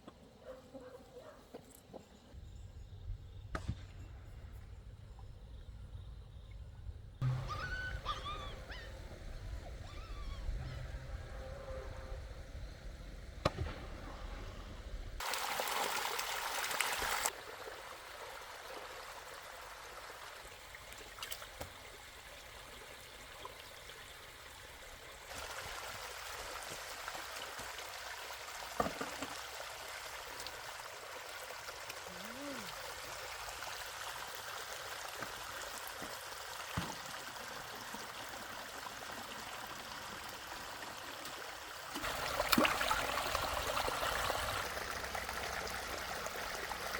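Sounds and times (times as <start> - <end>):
water running and trickling: 15.2 - 46.9.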